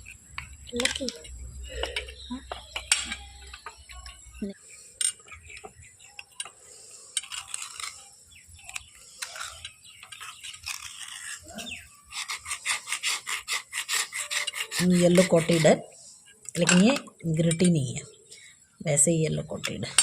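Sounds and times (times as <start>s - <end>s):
fast scraping strokes: 6.8s - 15.8s
bar clicking and rubbing: 8.6s - 15.8s.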